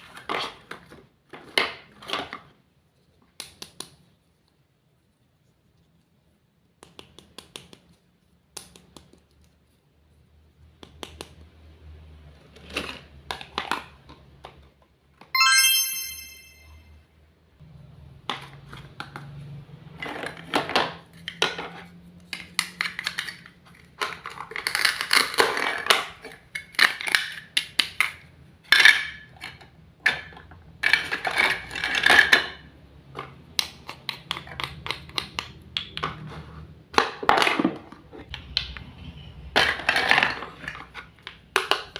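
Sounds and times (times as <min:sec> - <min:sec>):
short bright chime: 0:15.4 - 0:16.9.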